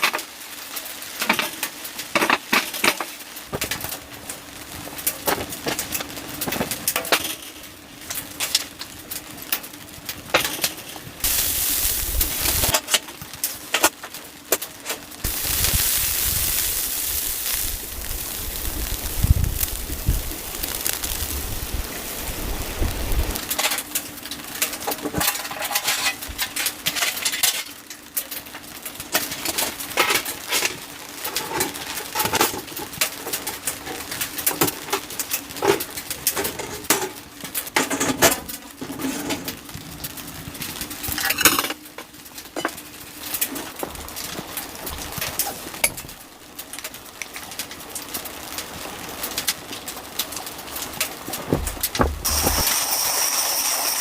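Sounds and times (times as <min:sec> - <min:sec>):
steady low hum: 0:10.4 - 0:13.8, 0:15.1 - 0:24.6.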